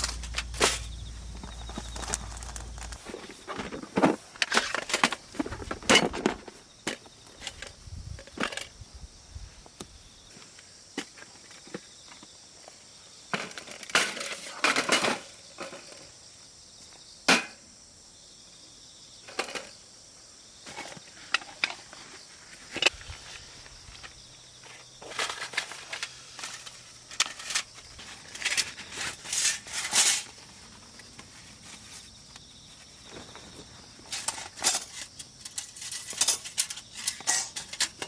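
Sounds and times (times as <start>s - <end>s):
rustling and crunching of gear: 0.0s - 8.8s, 20.7s - 38.0s.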